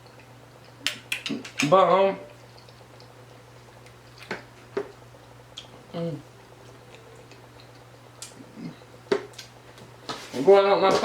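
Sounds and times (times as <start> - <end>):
low electrical hum: 0.0 - 11.0
person humming mm: 5.9 - 6.3, 8.4 - 8.9.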